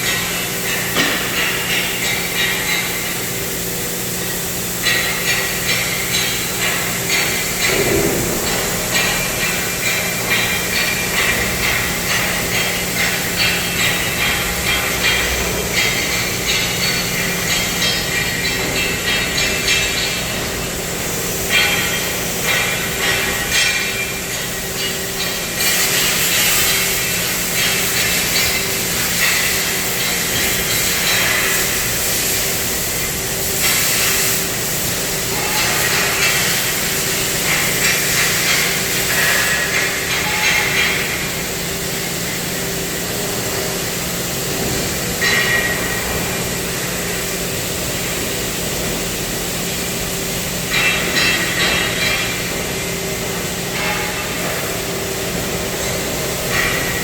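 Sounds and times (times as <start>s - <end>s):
machine hum: 0.0s - 33.6s.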